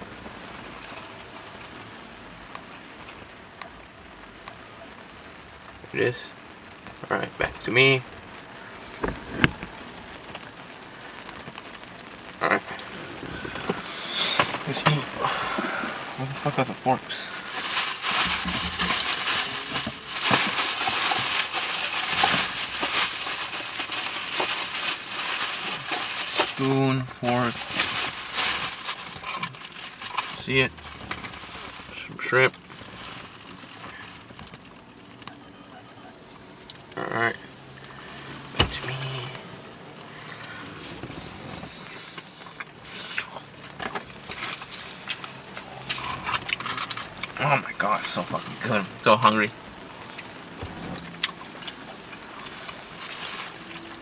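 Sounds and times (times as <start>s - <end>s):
packaging rustling and crinkling: 12.7s - 35.3s, 38.0s - 49.0s, 50.3s - 54.0s.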